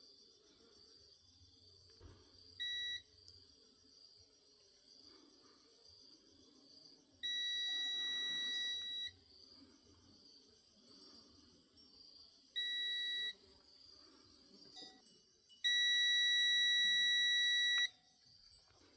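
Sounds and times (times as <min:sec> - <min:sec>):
insects chirring: 0:00.0 - 0:18.9
long steady beep: 0:02.6 - 0:03.2, 0:07.2 - 0:09.2, 0:12.6 - 0:13.5, 0:14.8 - 0:18.1.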